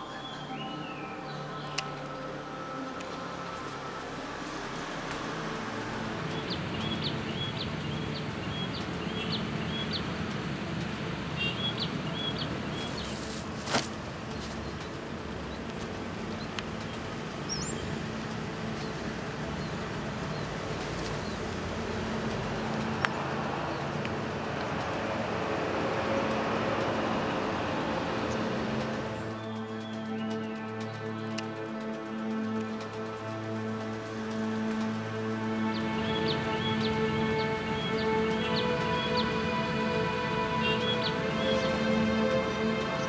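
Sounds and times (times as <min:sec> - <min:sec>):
outdoor background hiss: 0:00.0 - 0:43.0
small bird chirping: 0:06.2 - 0:10.4, 0:11.3 - 0:24.0.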